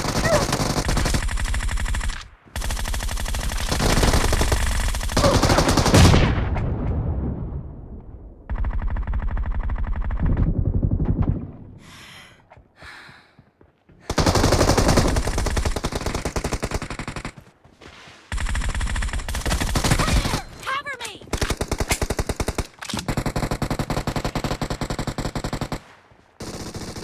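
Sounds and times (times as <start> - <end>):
video game automatic gunfire: 0.0 - 6.3, 8.5 - 11.4, 14.1 - 17.5, 18.3 - 27.0.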